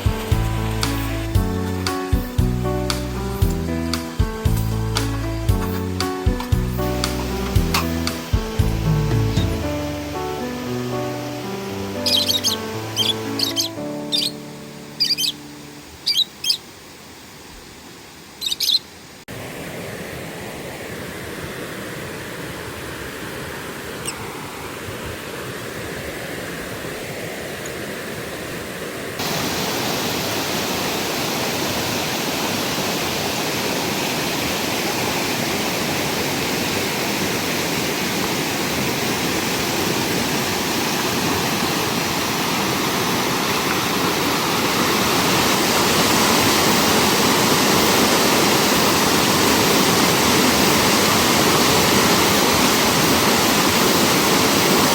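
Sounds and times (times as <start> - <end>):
stream rushing: 0.0 - 54.9
bird chirps: 12.0 - 16.7, 18.4 - 18.9.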